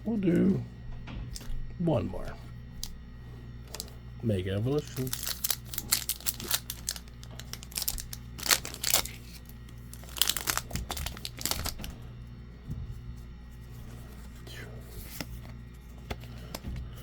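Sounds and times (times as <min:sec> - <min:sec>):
foil wrapper crinkling and tearing: 0:03.6 - 0:03.9, 0:04.6 - 0:12.0.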